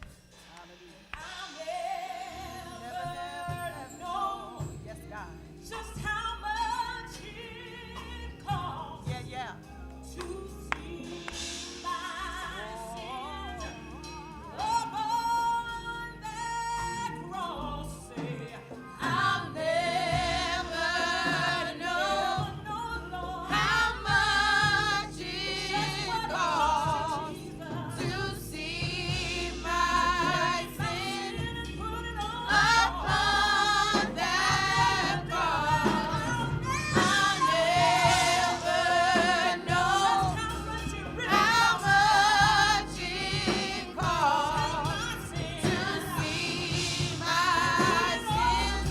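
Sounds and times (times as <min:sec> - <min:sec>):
band with bass and drums: 0:00.0 - 0:48.9.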